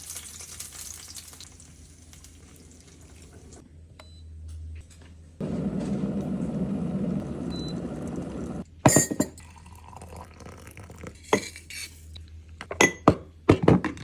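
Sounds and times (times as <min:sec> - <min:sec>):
food sizzling in a frying pan: 0:00.0 - 0:03.6
liquid being poured: 0:09.4 - 0:11.2.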